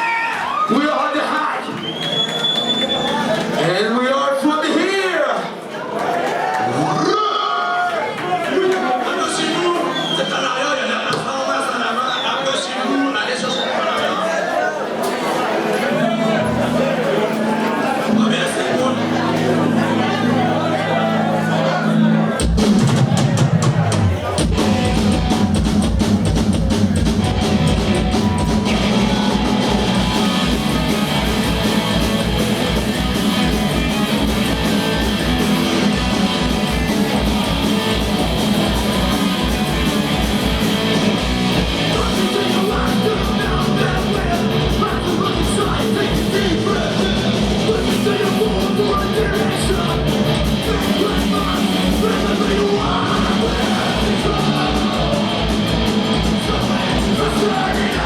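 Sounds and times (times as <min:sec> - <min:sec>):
distorted guitars: 0:15.6 - 0:58.0
person singing: 0:41.7 - 0:58.0.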